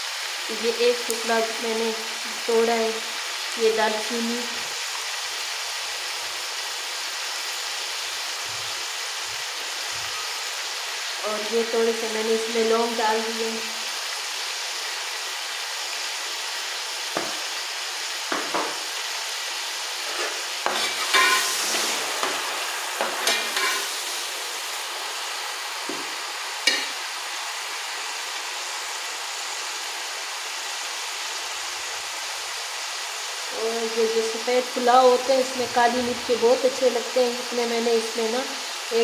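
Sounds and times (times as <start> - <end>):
food sizzling in hot ghee: 0.0 - 39.0
metal turner scraping a pot: 20.0 - 24.1.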